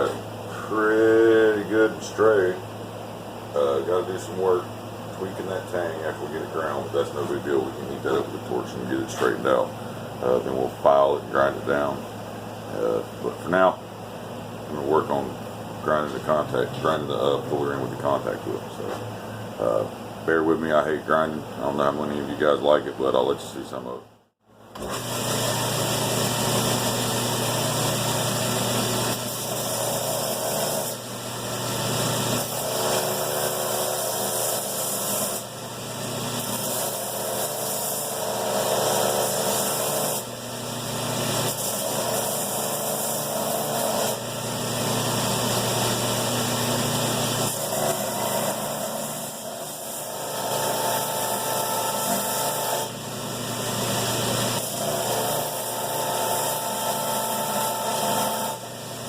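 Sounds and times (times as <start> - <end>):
belt grinder motor hum: 24.8 - 59.0
blade grinding on belt: 53.9 - 58.6.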